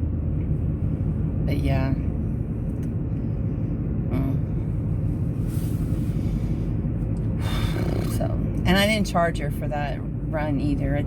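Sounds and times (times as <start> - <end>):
car interior rumble: 0.0 - 11.0.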